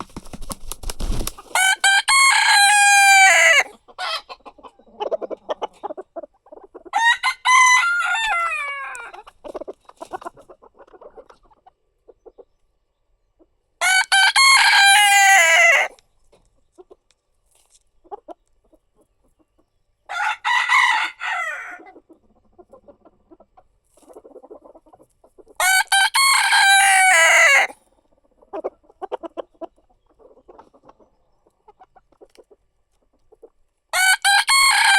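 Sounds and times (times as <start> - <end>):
rooster crowing: 1.5 - 4.2, 7.0 - 9.1, 13.8 - 15.9, 20.1 - 21.8, 25.6 - 27.7, 34.0 - 34.9
soft clucking: 3.6 - 6.9, 8.9 - 12.7.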